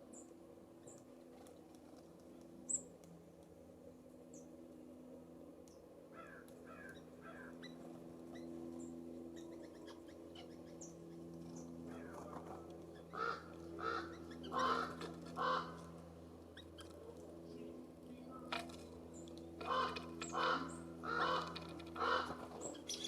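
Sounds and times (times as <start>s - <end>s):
small birds chipping: 0.0s - 3.1s, 5.6s - 23.0s
jay harsh rasping calls: 13.1s - 15.8s, 19.6s - 23.0s.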